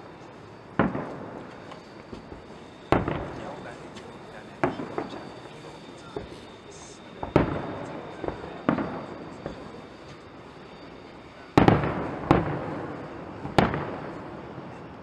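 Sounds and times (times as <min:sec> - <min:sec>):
fireworks shells bursting: 0:00.0 - 0:14.8
rolling echo of bangs: 0:02.9 - 0:03.7, 0:07.2 - 0:09.1, 0:11.6 - 0:14.3.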